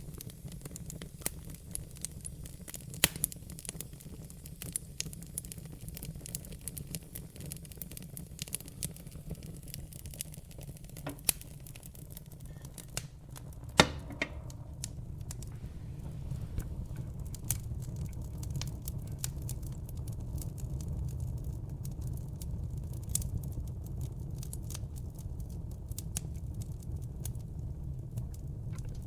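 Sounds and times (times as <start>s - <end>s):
fire pops and snaps: 0.0s - 29.0s
fireplace fire crackling: 0.0s - 29.0s
low steady rumble: 10.4s - 23.6s.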